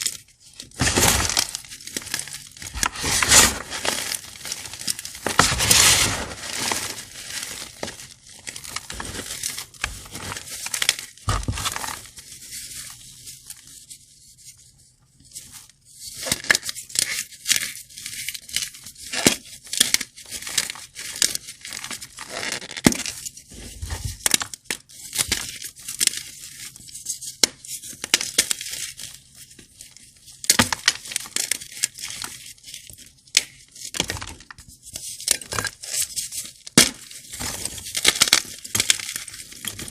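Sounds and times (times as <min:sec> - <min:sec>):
chalk blocks crunching: 0:00.0 - 0:12.2.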